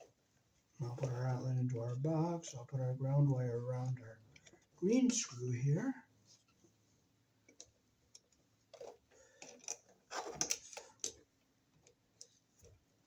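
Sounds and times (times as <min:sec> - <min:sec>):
wire clicks and scrapes: 0:08.7 - 0:11.2.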